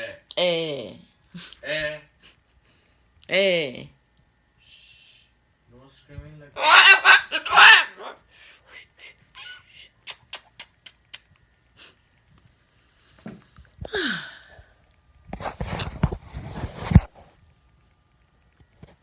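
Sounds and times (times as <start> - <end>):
cockatoo squawking: 6.6 - 8.2
rustling: 15.2 - 17.5.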